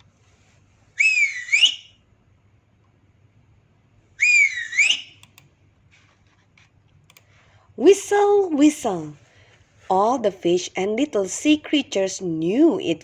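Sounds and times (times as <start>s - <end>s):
whistles sliding down and up in pitch: 1.0s - 2.0s, 4.2s - 5.2s.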